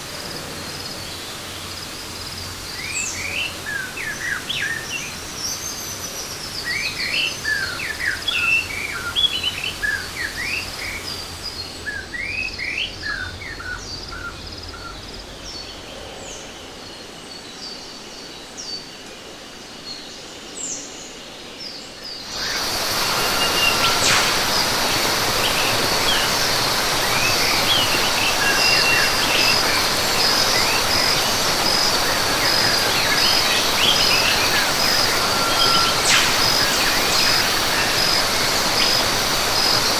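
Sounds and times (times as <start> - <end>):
rushing falling water: 0.0 - 13.3, 22.2 - 39.9
birds chirping: 0.0 - 18.4, 22.1 - 39.9
high pulsing insect trill: 22.3 - 39.9.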